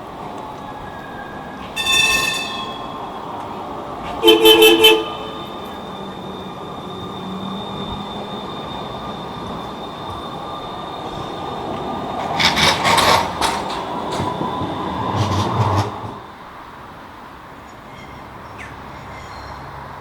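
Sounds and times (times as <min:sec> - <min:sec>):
tram running on rails: 0:00.0 - 0:20.0
faint high whine: 0:05.0 - 0:12.2
wheels clattering over track: 0:09.6 - 0:16.5.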